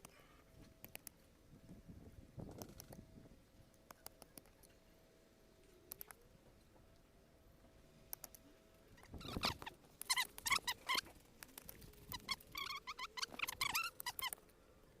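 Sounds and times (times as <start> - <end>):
animal chirping calls: 9.0 - 14.4.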